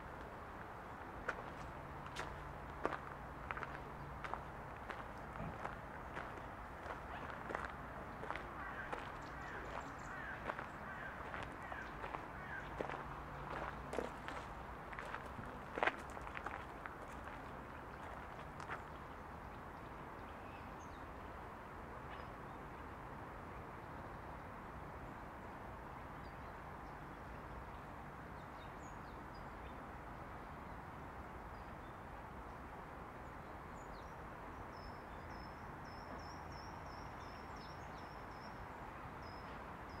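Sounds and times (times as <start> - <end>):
small birds chirping: 2.2 - 14.4.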